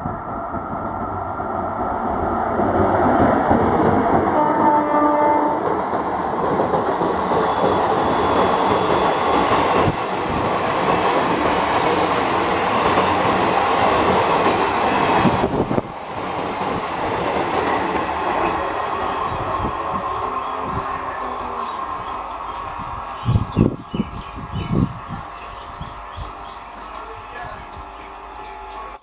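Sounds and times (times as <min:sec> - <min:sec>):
train wheels clattering over rails: 0:05.6 - 0:19.1.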